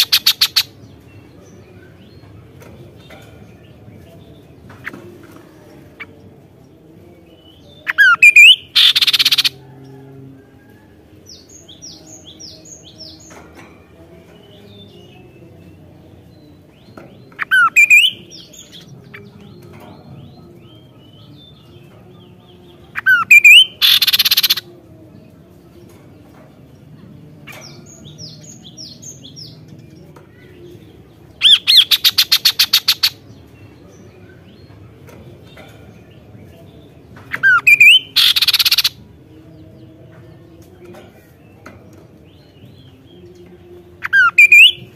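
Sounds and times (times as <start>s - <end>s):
bird whistling and rasping calls: 0.0s - 0.7s, 7.9s - 9.5s, 17.4s - 18.2s, 23.0s - 24.6s, 31.4s - 33.2s, 37.3s - 38.9s, 44.0s - 44.9s.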